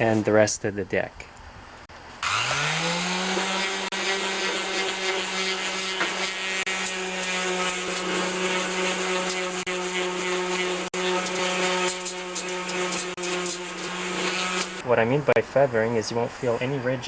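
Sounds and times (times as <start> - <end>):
electric sander running: 2.2 - 14.8.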